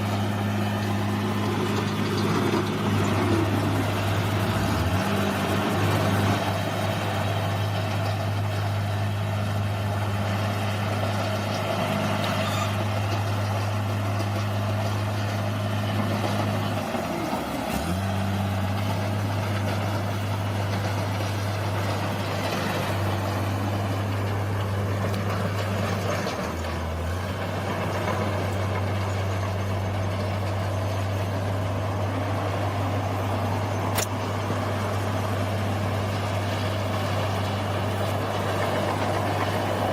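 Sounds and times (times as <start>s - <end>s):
bulldozer diesel engine running: 0.0s - 39.9s
sharp click: 33.9s - 34.2s.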